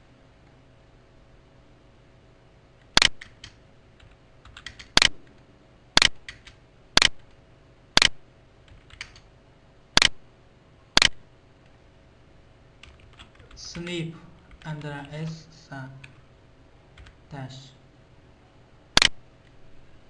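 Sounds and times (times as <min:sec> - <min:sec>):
computer keyboard key clicks: 0:03.0 - 0:05.4, 0:06.0 - 0:07.3, 0:08.7 - 0:09.2.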